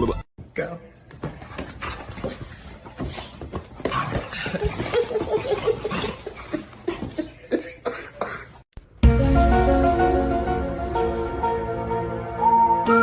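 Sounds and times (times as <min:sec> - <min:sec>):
person laughing: 0:04.4 - 0:08.6.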